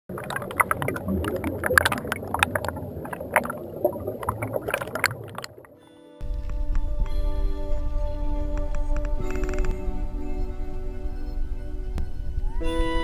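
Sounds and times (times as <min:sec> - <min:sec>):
water splashing around a kayak: 0:00.0 - 0:05.8
low rumble: 0:00.1 - 0:12.7
music with held tones: 0:05.7 - 0:13.0.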